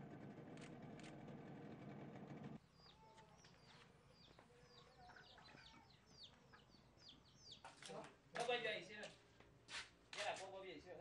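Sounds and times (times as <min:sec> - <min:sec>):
birds chirping: 0:01.6 - 0:08.0.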